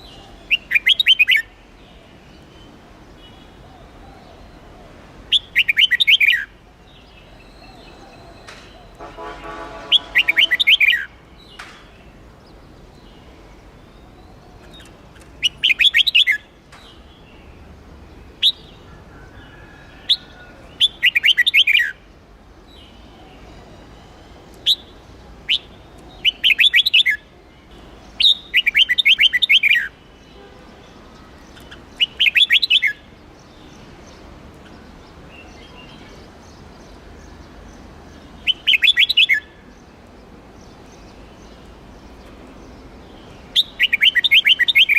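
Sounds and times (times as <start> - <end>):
bird chattering song: 0.0 - 1.5, 5.3 - 17.5, 18.4 - 18.9, 19.5 - 22.0, 22.8 - 44.9
bird sharp chirps: 7.4 - 11.9, 31.4 - 33.0, 38.4 - 39.5.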